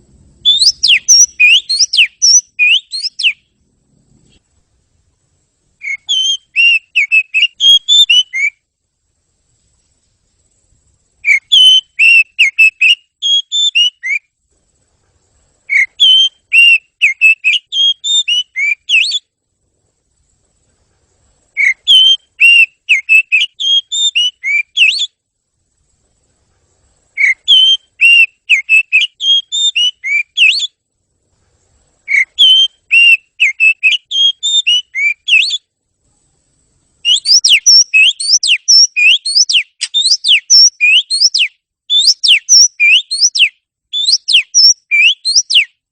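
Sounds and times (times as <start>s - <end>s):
bird singing whistled phrases: 0.4s - 3.5s, 5.8s - 8.6s, 11.2s - 14.3s, 15.7s - 19.3s, 21.6s - 25.2s, 27.2s - 30.8s, 32.1s - 35.7s, 37.0s - 45.8s.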